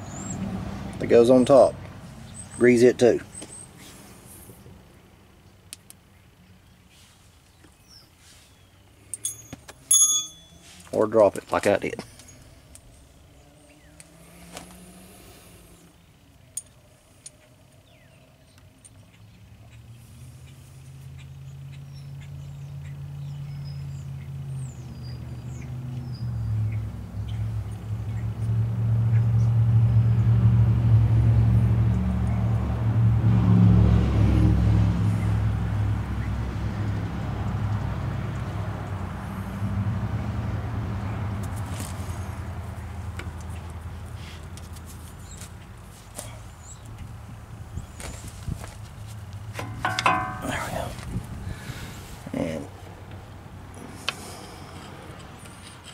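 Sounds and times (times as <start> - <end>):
engine low rumble: 0.0 - 55.9
metal clicks and clinks: 9.1 - 10.9, 49.6 - 50.7.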